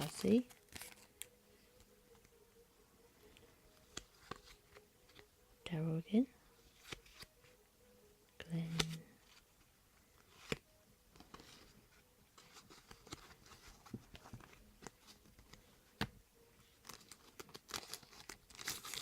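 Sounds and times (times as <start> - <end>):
card crinkling: 0.0 - 1.3, 3.8 - 5.3, 6.7 - 7.3, 12.4 - 15.6, 16.8 - 19.0
cards clicking and rustling: 3.8 - 5.3, 6.7 - 7.3, 8.6 - 9.5, 10.2 - 10.6, 12.4 - 16.2, 16.8 - 19.0.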